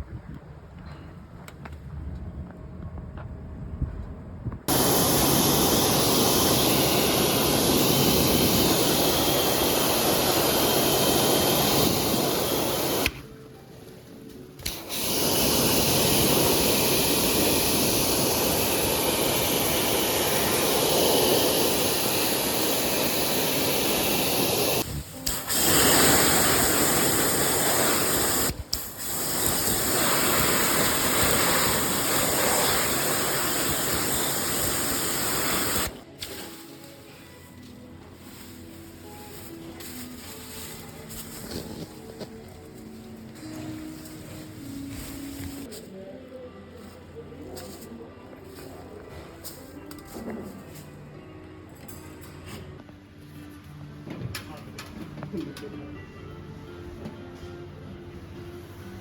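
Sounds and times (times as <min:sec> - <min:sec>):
pressure washer motor running: 0:04.7 - 0:13.1, 0:14.9 - 0:24.8, 0:25.5 - 0:36.0
pressure washer spray hissing: 0:04.7 - 0:13.2, 0:14.6 - 0:37.2, 0:43.4 - 0:45.7.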